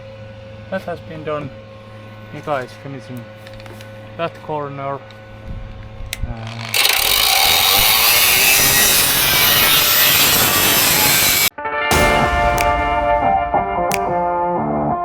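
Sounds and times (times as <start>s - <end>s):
power sander hissing: 6.3s - 11.5s.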